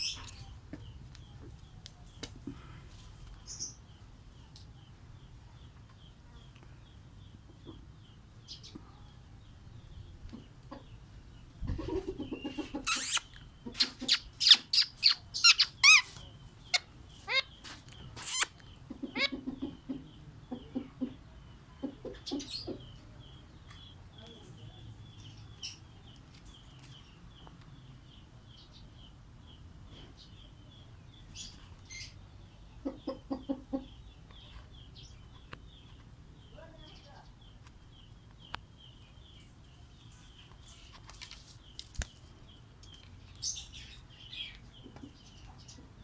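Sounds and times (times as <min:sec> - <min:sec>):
faint bird chirping: 0:00.0 - 0:46.0
low pulsed bird clucking: 0:11.6 - 0:16.1, 0:32.8 - 0:34.2
birds squawking and screeching: 0:11.6 - 0:20.1.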